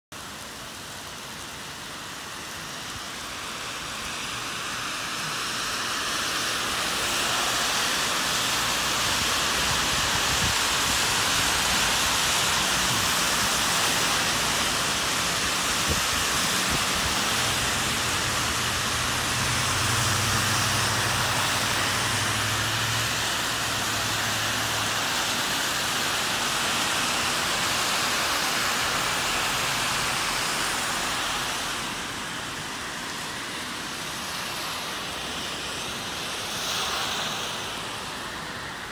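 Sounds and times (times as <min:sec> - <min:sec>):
heavy rain on a street: 0:00.1 - 0:38.9
car engine humming: 0:17.1 - 0:24.9.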